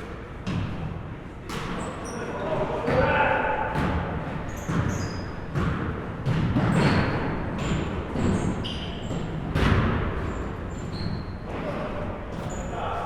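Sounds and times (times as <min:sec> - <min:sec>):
sneakers squeaking on floor: 0:01.5 - 0:13.0
basketball bouncing on hardwood: 0:04.6 - 0:08.4, 0:09.1 - 0:10.4.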